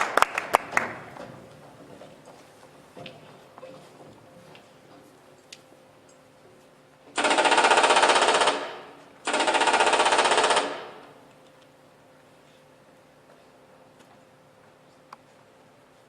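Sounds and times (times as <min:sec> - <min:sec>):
pneumatic rivet gun hammering: 0:07.2 - 0:11.1.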